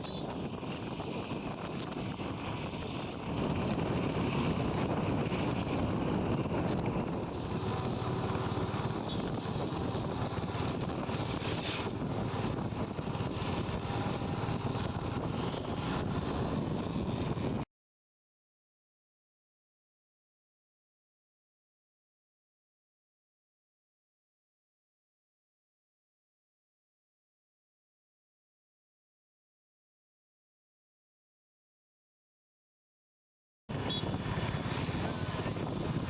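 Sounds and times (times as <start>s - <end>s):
steady rushing noise: 0.0s - 17.6s, 33.7s - 36.0s
wind buffeting microphone: 0.0s - 17.6s, 33.7s - 36.0s.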